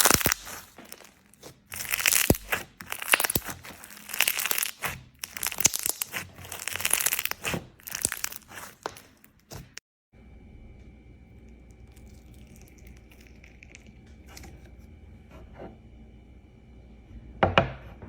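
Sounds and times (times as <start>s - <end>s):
slime crackling and popping: 0.0s - 9.8s.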